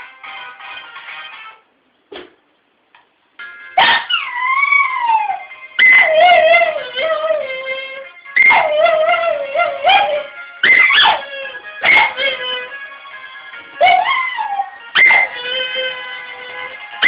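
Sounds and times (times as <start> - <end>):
phone ringtone tune: 3.4 - 3.8
dog howling: 3.8 - 12.8, 13.8 - 16.1.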